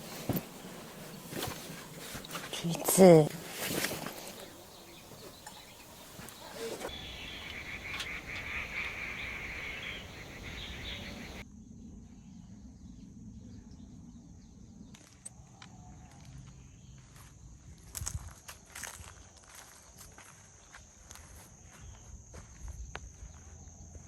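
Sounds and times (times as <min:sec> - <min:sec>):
steady high hiss: 0:00.0 - 0:11.4.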